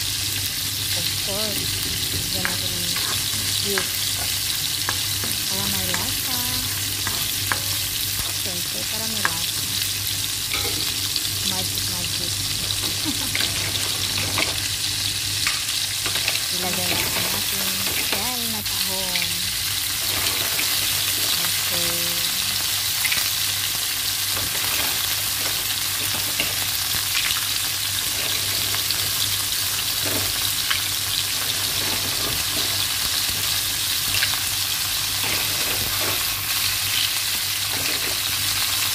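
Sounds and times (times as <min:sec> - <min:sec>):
food sizzling in hot oil: 0:00.0 - 0:38.9
spatula clicking and scraping: 0:02.4 - 0:08.4.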